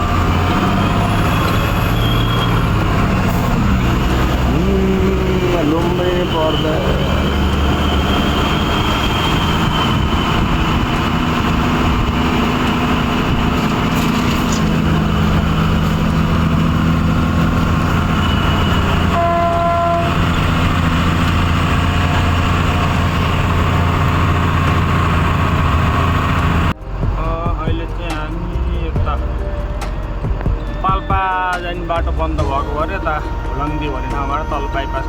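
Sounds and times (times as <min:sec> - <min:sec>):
truck horn: 0:00.0 - 0:26.7
road noise: 0:00.0 - 0:35.0
truck diesel engine running: 0:00.0 - 0:35.0.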